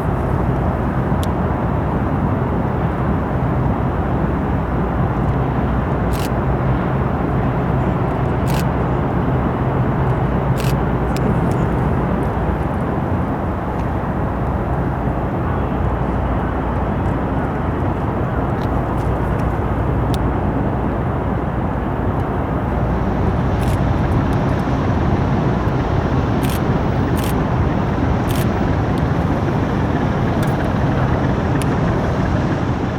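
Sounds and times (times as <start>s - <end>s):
engine rumble: 0.0s - 32.9s
rushing noise: 22.4s - 32.9s.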